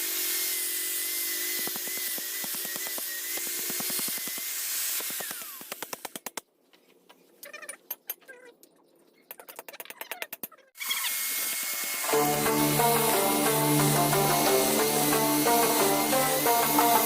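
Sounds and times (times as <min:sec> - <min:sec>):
small power tool whine: 0:00.0 - 0:06.2, 0:10.8 - 0:17.0.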